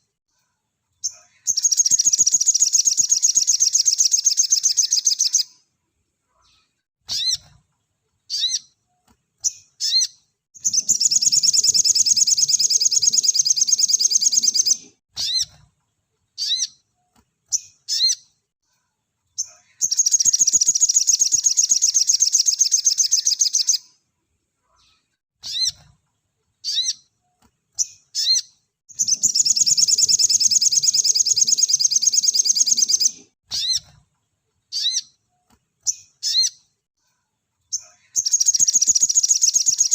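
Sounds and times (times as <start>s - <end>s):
bird sharp chirps: 1.0s - 5.6s, 8.3s - 8.8s, 9.4s - 15.6s, 19.4s - 24.0s, 24.9s - 25.9s, 27.8s - 34.0s, 34.7s - 36.7s, 37.7s - 39.9s.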